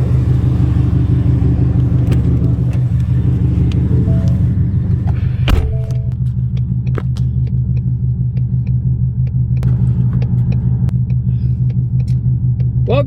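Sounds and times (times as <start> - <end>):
car engine running: 0.0 - 13.0
light ticks: 6.5 - 12.8.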